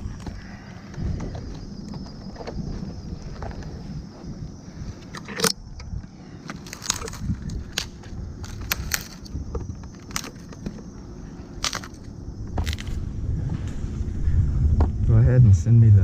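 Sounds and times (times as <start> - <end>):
low rumbling handling noise: 0.0 - 16.0
climbing gear clinking: 6.4 - 10.9, 11.5 - 13.0.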